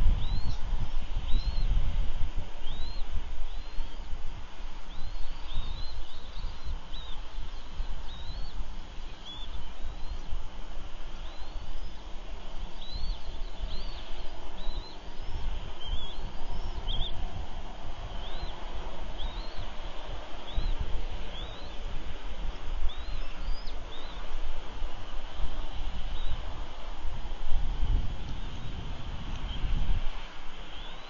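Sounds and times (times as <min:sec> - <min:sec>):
steady low rumble: 0:00.0 - 0:31.0
bird chirping high: 0:04.9 - 0:10.3, 0:12.8 - 0:17.2, 0:18.1 - 0:18.6, 0:19.2 - 0:19.7, 0:20.5 - 0:21.8, 0:22.9 - 0:24.2.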